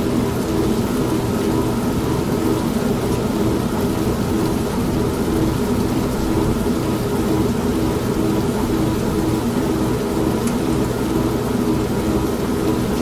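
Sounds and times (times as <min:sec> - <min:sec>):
steady rain: 0:00.0 - 0:13.0
washing machine motor humming: 0:00.0 - 0:13.0
low rumble of thunder: 0:04.0 - 0:09.6.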